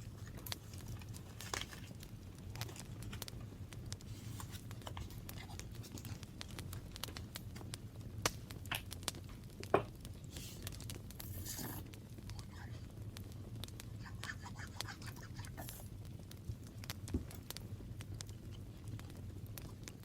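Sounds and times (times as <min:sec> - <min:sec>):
paper crinkling and rustling: 0:00.0 - 0:03.3, 0:04.0 - 0:06.3.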